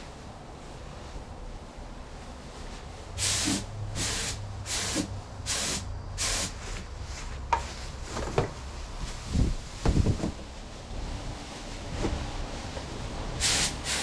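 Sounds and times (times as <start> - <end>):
paint spray gun hissing: 3.2 - 6.6, 13.4 - 14.0.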